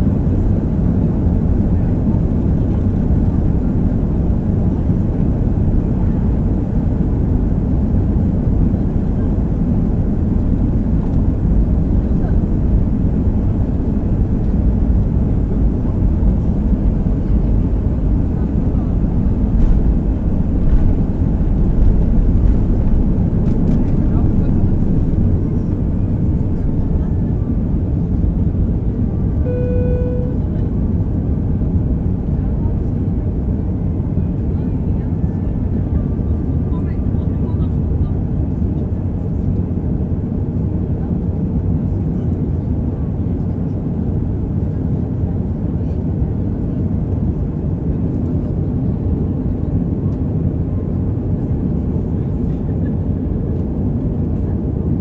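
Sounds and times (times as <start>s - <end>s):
jet engines at takeoff: 0.0s - 55.0s
short steady tone: 29.4s - 30.4s.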